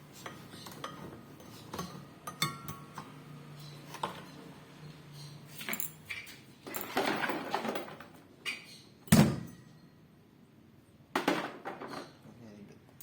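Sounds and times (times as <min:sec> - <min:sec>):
parts rattling clatter: 0:05.5 - 0:08.2.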